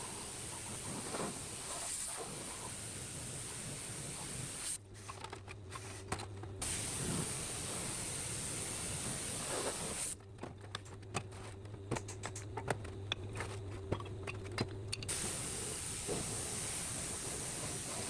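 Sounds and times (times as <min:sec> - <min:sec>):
steady hiss: 0:00.0 - 0:04.8, 0:06.6 - 0:10.2, 0:15.1 - 0:18.0.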